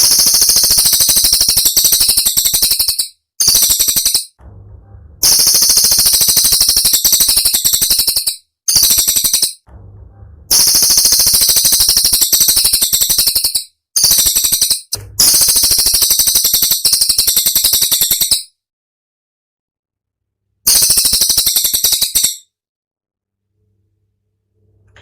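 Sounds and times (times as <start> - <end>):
songbird shrill rapid-fire phrases: 0.0 - 4.4, 5.2 - 9.6, 10.5 - 18.5, 20.7 - 22.4.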